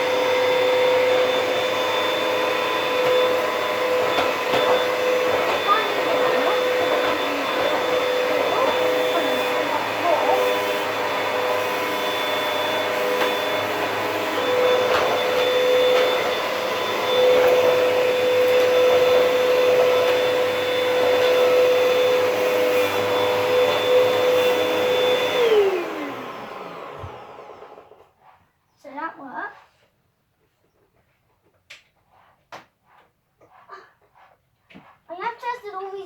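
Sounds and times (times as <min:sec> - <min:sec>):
vacuum cleaner motor whining: 0:00.0 - 0:28.2.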